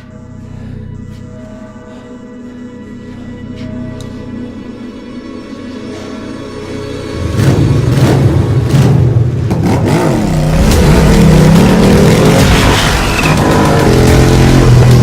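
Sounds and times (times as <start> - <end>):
motorcycle engine revving: 7.1 - 15.0.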